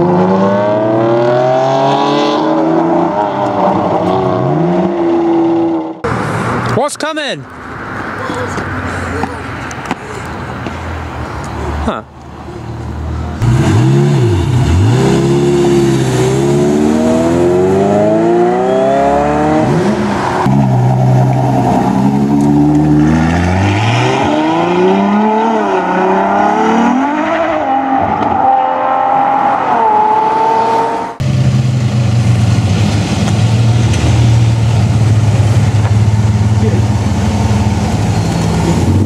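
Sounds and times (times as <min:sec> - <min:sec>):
supercar engines accelerating: 0:00.0 - 0:06.0, 0:13.0 - 0:39.0.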